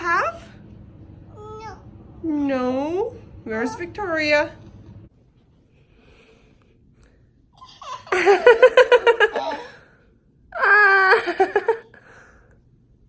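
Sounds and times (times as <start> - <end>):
toddler giggling: 7.6 - 9.7.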